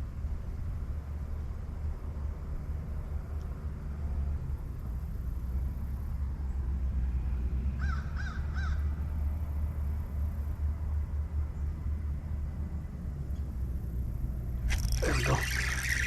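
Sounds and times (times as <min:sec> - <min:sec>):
bird harsh caw-like calls: 0:07.8 - 0:08.8.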